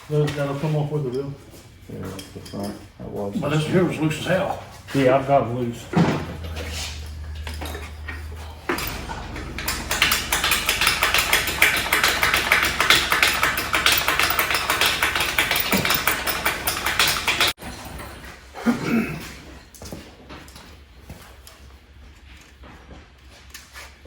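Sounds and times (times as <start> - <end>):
ratchet wrench clicking: 8.8 - 17.5.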